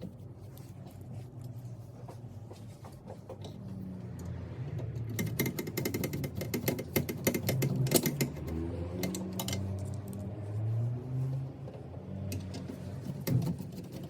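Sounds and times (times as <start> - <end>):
small parts clicking and rattling: 4.2 - 10.3.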